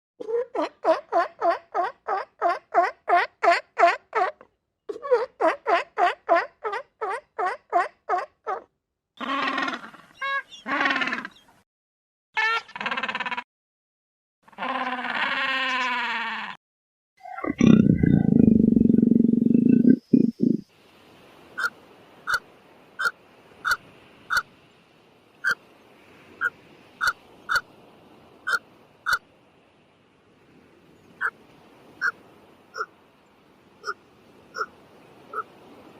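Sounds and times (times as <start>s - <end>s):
buzzy animal calls: 12.4s - 13.4s, 14.5s - 16.6s, 17.2s - 20.6s
short repeated animal calls: 12.4s - 13.4s, 14.5s - 16.6s, 21.6s - 22.4s, 23.0s - 24.5s, 28.4s - 29.2s, 32.0s - 32.9s, 33.8s - 34.7s, 35.3s - 35.5s.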